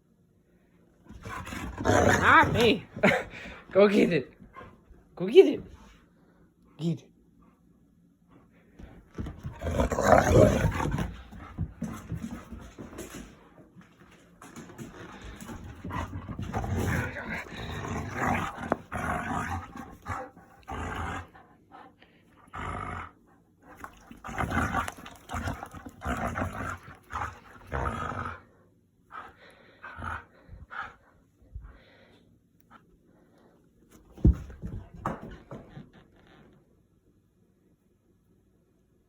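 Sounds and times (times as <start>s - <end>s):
dog growling while playing: 1.1s - 3.6s, 8.8s - 13.3s, 14.8s - 21.8s, 22.4s - 31.1s.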